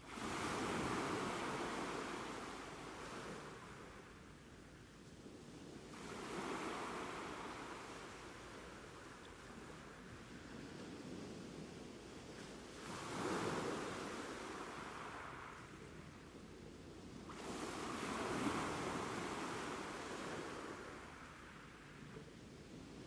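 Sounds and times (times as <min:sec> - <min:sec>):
ocean waves breaking: 0:00.1 - 0:04.0.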